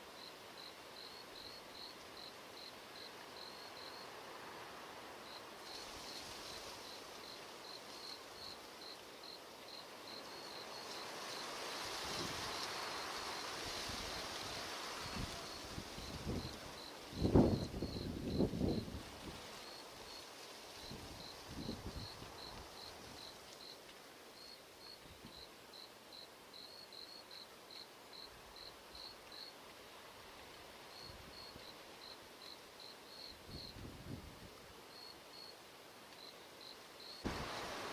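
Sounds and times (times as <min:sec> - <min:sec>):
cricket chirping: 0:00.1 - 0:18.9, 0:19.6 - 0:20.2, 0:20.8 - 0:23.8, 0:24.4 - 0:29.6, 0:30.9 - 0:33.9, 0:34.9 - 0:35.6, 0:36.2 - 0:37.9
wind hissing: 0:37.2 - 0:37.9.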